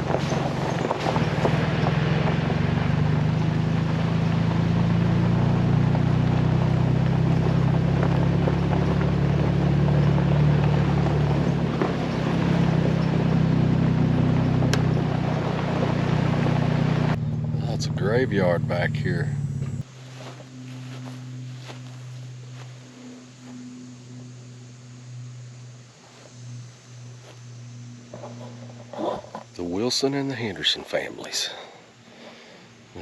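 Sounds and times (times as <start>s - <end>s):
small knocks from rough road: 0.0s - 17.5s
car engine running: 0.0s - 33.0s
road noise on gravel: 0.0s - 33.0s.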